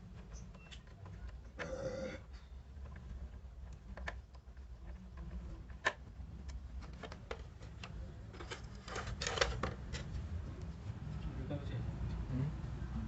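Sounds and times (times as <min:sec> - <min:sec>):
objects clicking and tapping: 0:02.8 - 0:10.2.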